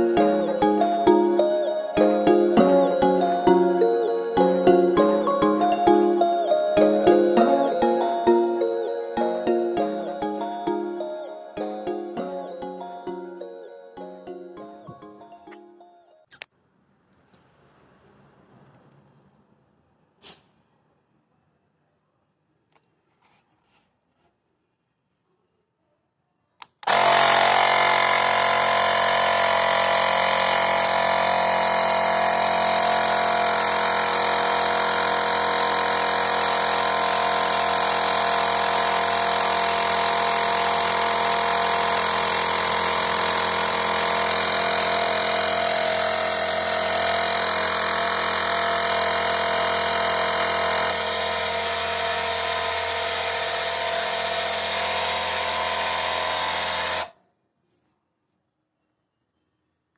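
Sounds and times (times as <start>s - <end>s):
air compressor droning: 26.8s - 57.1s.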